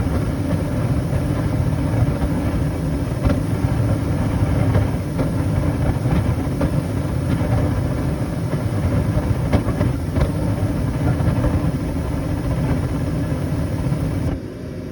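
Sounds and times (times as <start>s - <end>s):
furnace low rumble: 0.0s - 14.9s.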